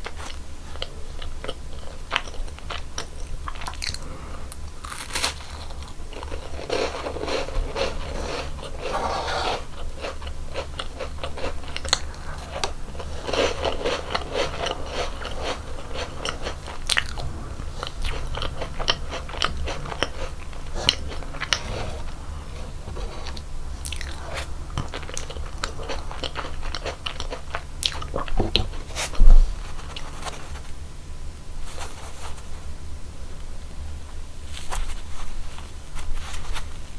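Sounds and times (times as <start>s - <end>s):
wet chewing: 0.0s - 30.4s
crunchy crackles: 0.0s - 30.8s.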